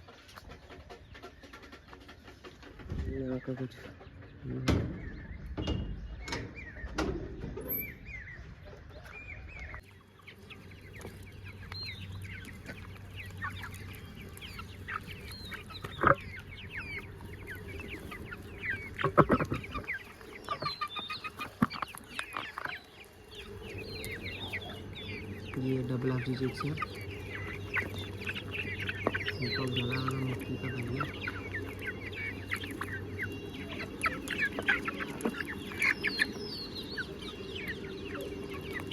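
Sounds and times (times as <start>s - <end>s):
chickens clucking and chirping: 0.0s - 38.9s.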